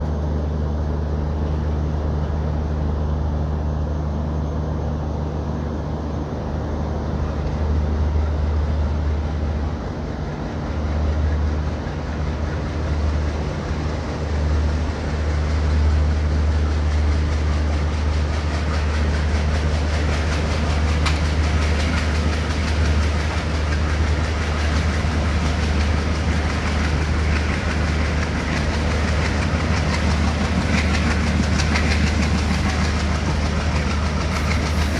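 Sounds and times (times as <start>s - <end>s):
diesel locomotive engine drone: 0.0s - 34.9s
wheels clacking on rails: 8.7s - 34.9s.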